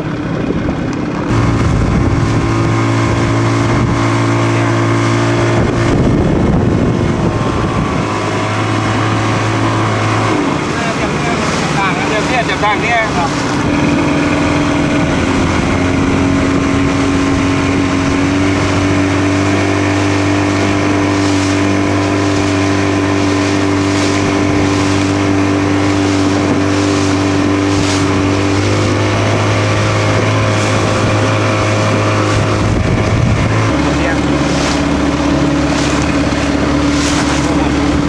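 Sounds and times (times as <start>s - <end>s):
boat engine running: 0.0s - 38.0s
wind and water hiss: 0.0s - 38.0s.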